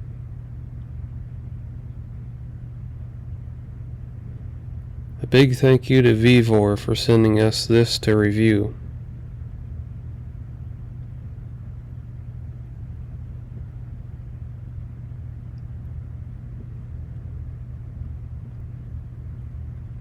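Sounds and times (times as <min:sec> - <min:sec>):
steady low hum: 0:00.0 - 0:20.0
faint background hiss: 0:05.2 - 0:08.9.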